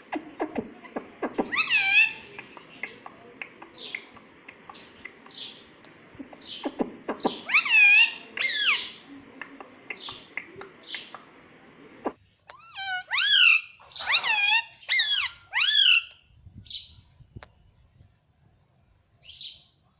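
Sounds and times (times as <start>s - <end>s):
parakeet clicks and chirps: 0.1s - 11.4s
loud parakeet calls: 0.8s - 3.0s, 6.4s - 9.1s, 12.5s - 16.2s.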